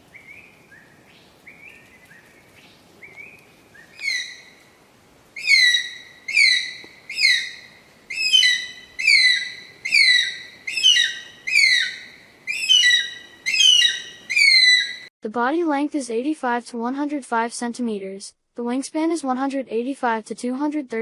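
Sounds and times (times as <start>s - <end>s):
eagle screaming: 5.4s - 15.1s.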